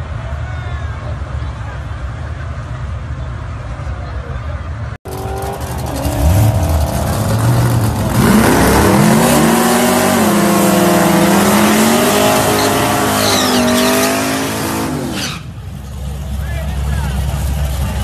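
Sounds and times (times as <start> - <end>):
car engine revving: 5.1 - 16.2.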